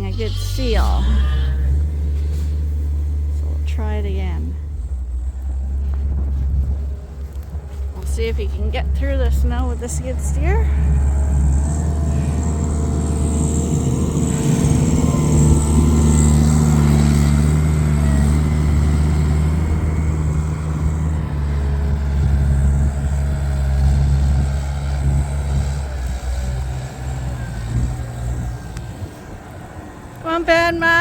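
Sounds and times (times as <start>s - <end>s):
skid steer engine running: 0.0s - 31.0s.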